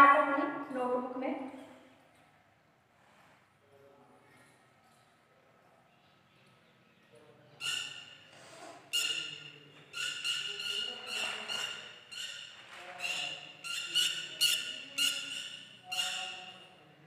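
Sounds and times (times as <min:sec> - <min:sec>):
bird squawking: 0:07.6 - 0:08.3, 0:08.9 - 0:16.8.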